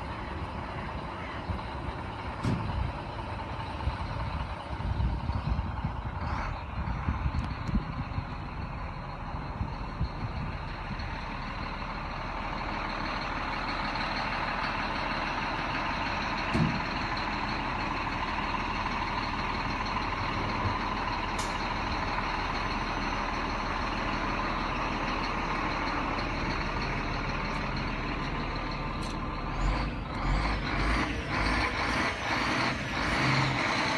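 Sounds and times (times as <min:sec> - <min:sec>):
truck diesel engine running: 0:00.0 - 0:33.9
low thumps and knocks: 0:16.5 - 0:17.0.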